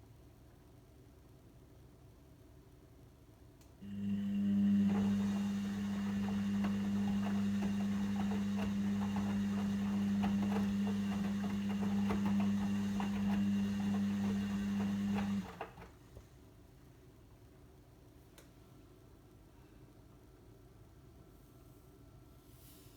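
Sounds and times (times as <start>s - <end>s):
washing machine drain pump: 3.8s - 16.0s.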